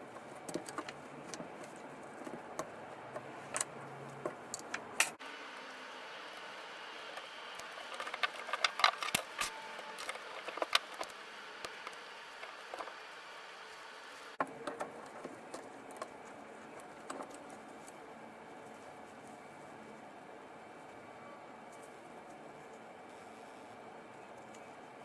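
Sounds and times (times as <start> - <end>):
small hard parts clicking: 7.2 - 13.0.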